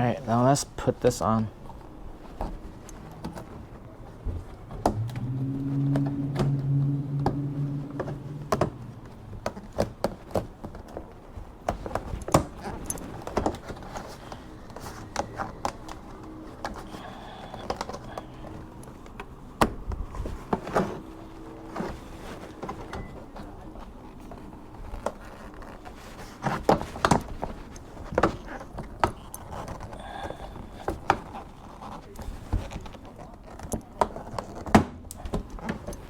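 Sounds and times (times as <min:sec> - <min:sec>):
low steady hum: 0:00.0 - 0:25.7.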